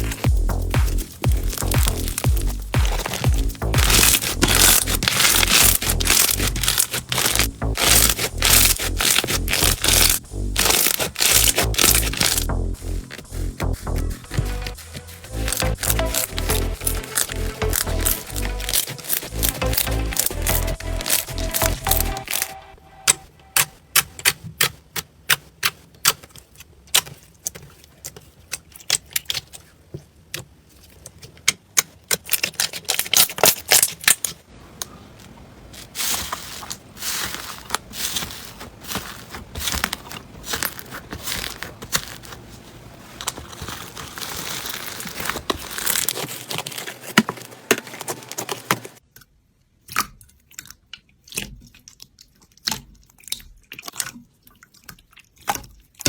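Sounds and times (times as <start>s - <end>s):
slime crackling and popping: 0.0s - 24.7s, 31.8s - 34.4s, 35.7s - 42.5s, 43.2s - 49.0s.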